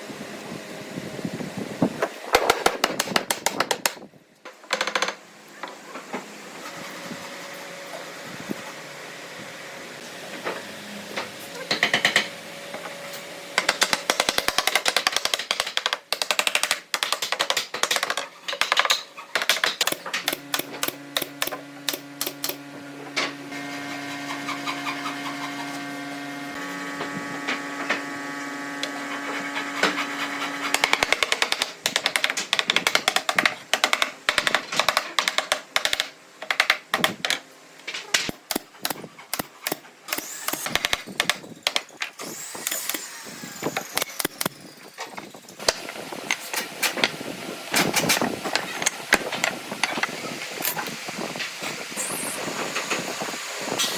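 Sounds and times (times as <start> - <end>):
power tool motor running: 20.2 - 31.2, 38.8 - 41.1, 42.2 - 44.9.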